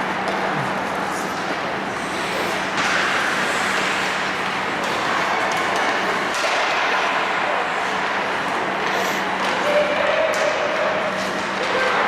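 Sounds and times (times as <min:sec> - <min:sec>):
skates on ice: 0:01.3 - 0:08.4.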